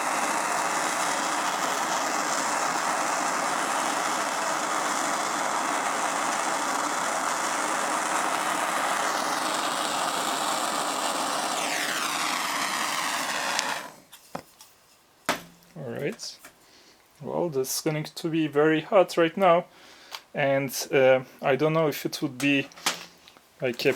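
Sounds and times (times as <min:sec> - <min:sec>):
propane torch flame hissing: 0:00.0 - 0:14.2.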